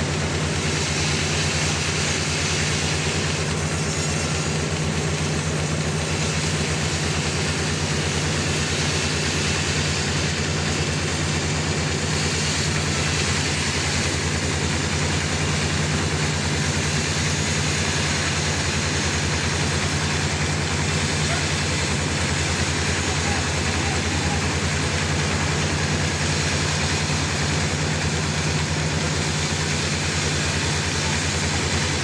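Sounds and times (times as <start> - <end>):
sawmill engine throbbing: 0.0 - 32.0.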